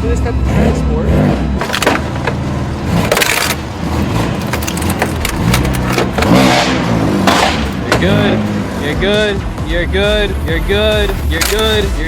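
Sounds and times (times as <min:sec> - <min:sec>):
vehicle running: 0:00.0 - 0:12.0
sharp knocks and crunching: 0:01.6 - 0:08.5, 0:11.0 - 0:11.8.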